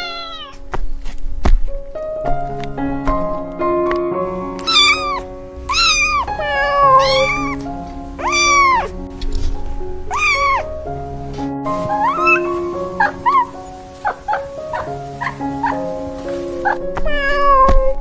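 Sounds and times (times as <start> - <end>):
cat meowing: 0.0 - 0.7, 4.6 - 9.0, 10.1 - 10.7, 11.9 - 15.8, 16.6 - 18.0
background music with held notes: 0.0 - 18.0.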